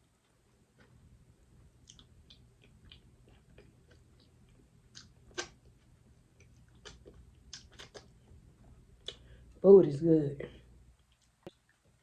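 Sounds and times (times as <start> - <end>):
person chewing food: 0.0 - 1.1, 1.7 - 9.5, 11.0 - 12.0.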